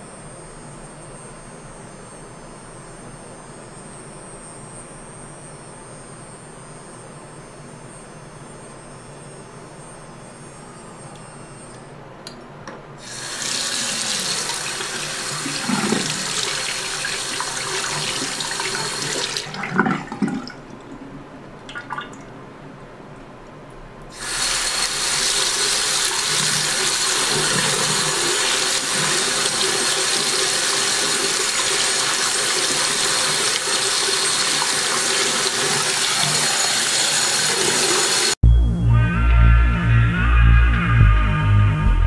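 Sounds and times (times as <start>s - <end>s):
water running from tap: 13.0s - 20.5s, 24.2s - 38.4s.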